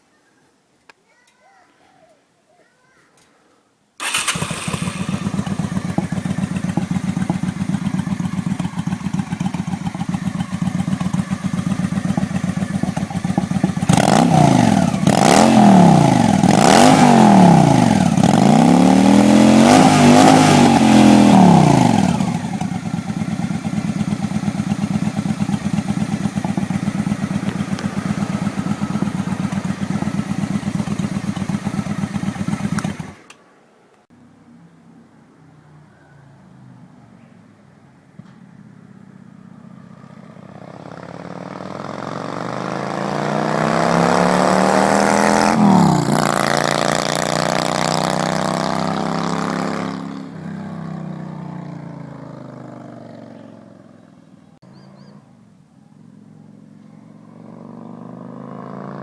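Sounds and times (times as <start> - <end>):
motorcycle engine idling: 4.0 - 16.6, 21.2 - 33.3
motorcycle engine revving: 4.0 - 33.4, 39.1 - 54.1, 56.3 - 59.0.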